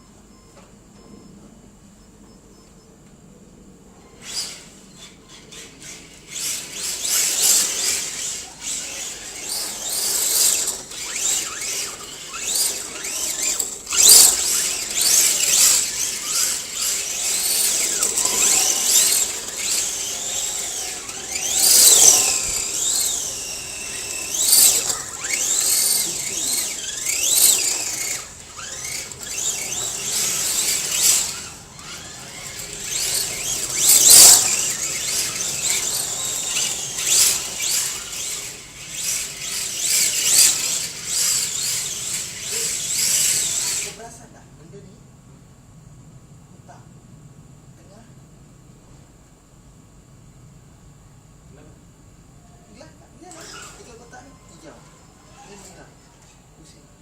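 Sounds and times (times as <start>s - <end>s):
toy car tyres squealing: 4.0s - 44.1s, 53.2s - 56.6s.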